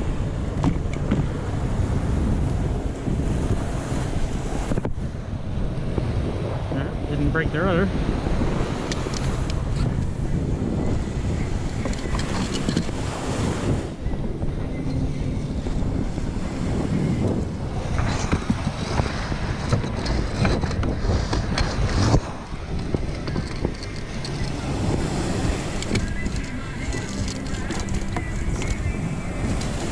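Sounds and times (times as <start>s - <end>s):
waves and water: 0.0s - 29.9s
wind buffeting microphone: 0.0s - 29.9s
knocks and clicks: 17.4s - 24.6s, 25.6s - 28.9s.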